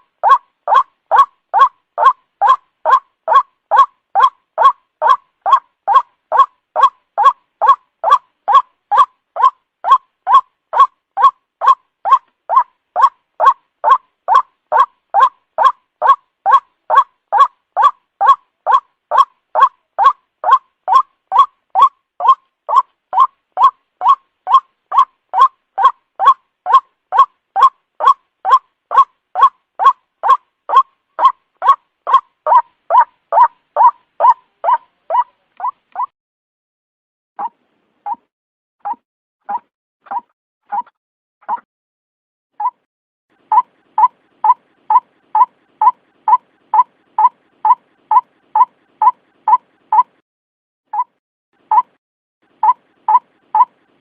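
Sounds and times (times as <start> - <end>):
waterhen calling: 0.2 - 35.7.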